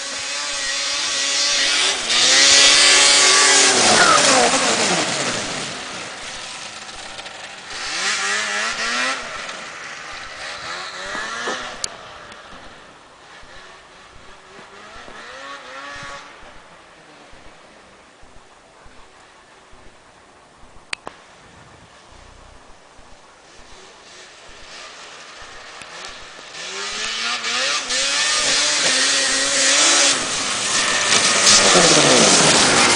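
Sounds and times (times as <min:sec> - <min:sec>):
snowmobile engine revving: 0:00.0 - 0:19.2, 0:21.6 - 0:32.9.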